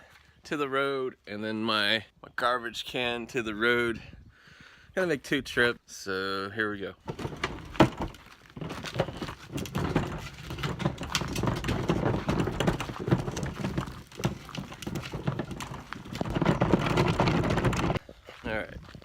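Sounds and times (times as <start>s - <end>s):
wheelie bin rolling over pavement: 7.0s - 18.0s.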